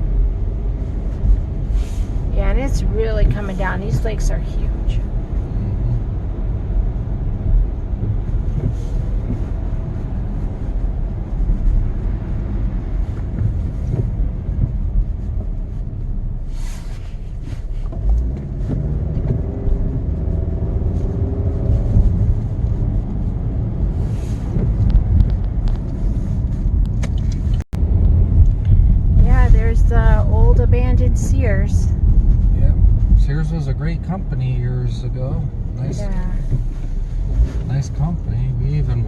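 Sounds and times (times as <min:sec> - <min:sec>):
engine and tyre rumble: 0:00.0 - 0:39.0.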